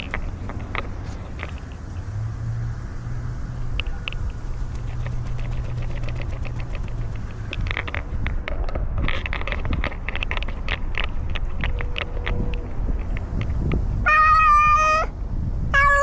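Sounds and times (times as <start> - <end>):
steady low rumble: 0.0 - 14.1
camera rubbing and clicking: 4.0 - 8.3.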